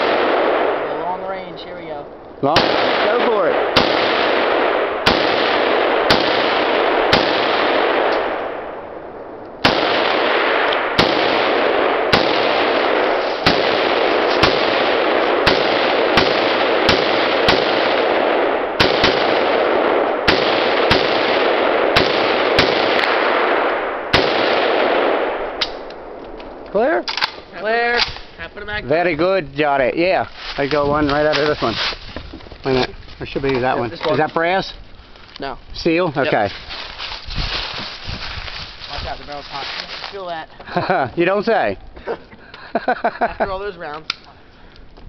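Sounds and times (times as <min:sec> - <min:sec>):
rifle shots: 0:00.0 - 0:01.3, 0:02.4 - 0:28.3.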